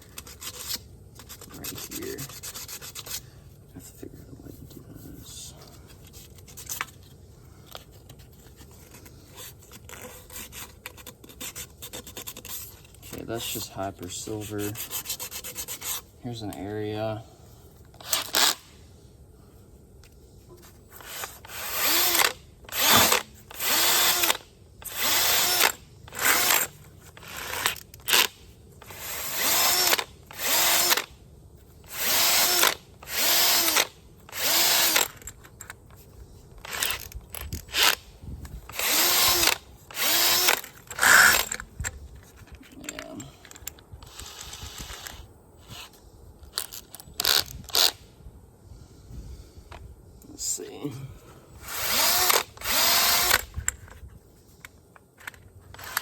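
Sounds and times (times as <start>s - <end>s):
power drill sanding pad bursts: 51.6s - 53.4s.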